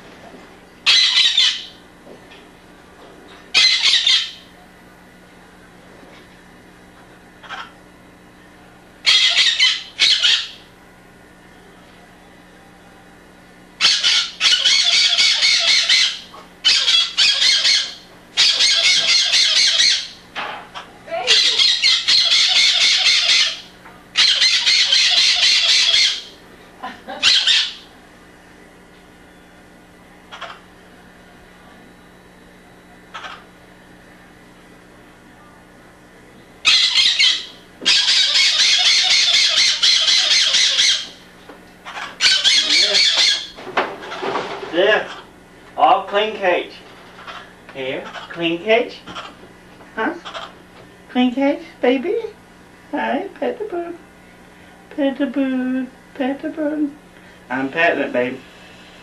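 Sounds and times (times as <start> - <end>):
faint steady hum: 0.0 - 59.0
pet bird squawking: 0.8 - 1.8, 3.5 - 4.4, 7.4 - 7.8, 9.0 - 10.7, 13.8 - 20.2, 20.8 - 26.4, 27.1 - 27.9, 30.3 - 30.7, 33.1 - 33.5, 36.6 - 41.2, 41.8 - 44.4, 45.0 - 45.3, 47.2 - 48.5, 49.1 - 49.4, 50.0 - 50.6.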